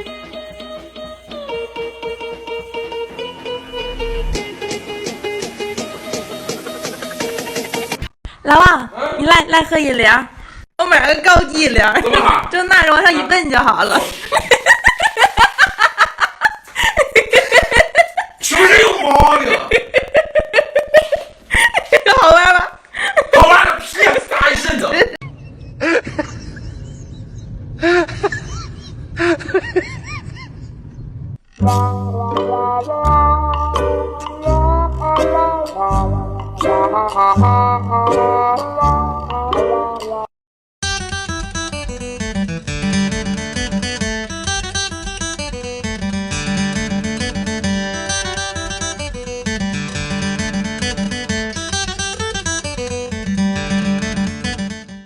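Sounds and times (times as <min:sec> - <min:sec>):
music: 0:00.0 - 0:08.1, 0:31.6 - 0:55.0
fast acoustic guitar music: 0:40.8 - 0:55.0.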